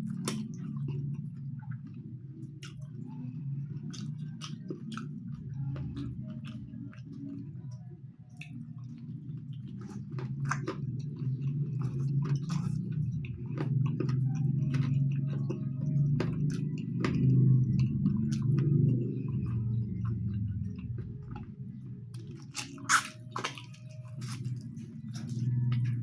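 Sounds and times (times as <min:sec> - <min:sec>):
chewing food: 0:00.0 - 0:26.0.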